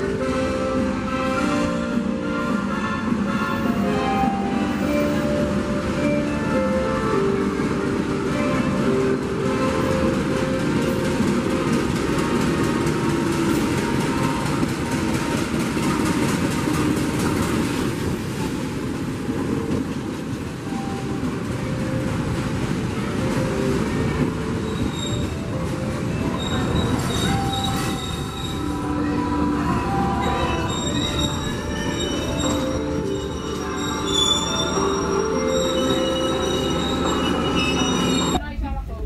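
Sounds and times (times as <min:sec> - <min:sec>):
train rumbling on rails: 0:00.0 - 0:39.0
train wheels squealing: 0:24.2 - 0:29.1, 0:29.8 - 0:38.4.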